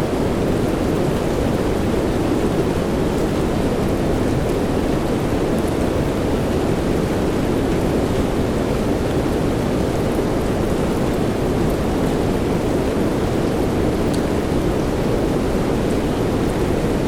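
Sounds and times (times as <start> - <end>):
faint raindrop ticks: 14.0 - 14.3.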